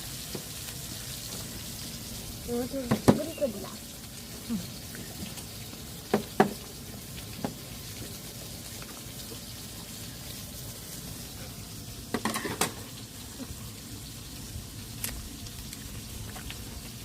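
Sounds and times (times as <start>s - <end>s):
food cooking hiss: 0.0s - 17.0s
utensils clattering: 12.2s - 12.8s.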